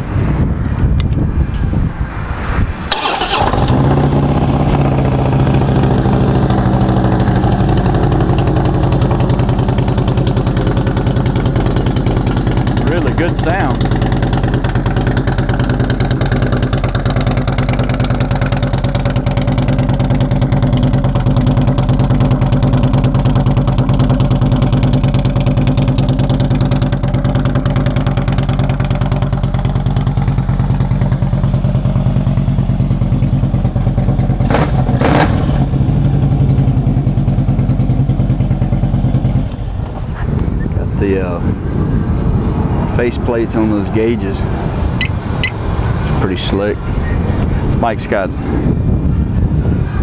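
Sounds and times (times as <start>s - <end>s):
motorcycle engine idling: 3.0s - 40.8s.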